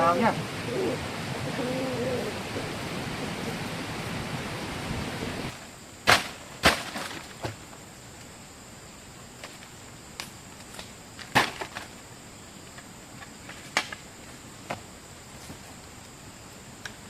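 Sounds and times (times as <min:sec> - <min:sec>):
steady rushing noise: 0:00.0 - 0:05.9.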